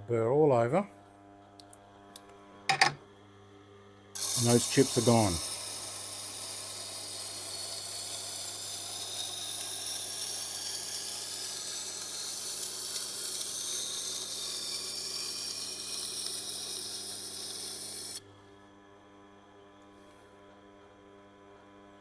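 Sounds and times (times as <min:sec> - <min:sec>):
knife grinding on wet grindstone: 0:04.2 - 0:18.2.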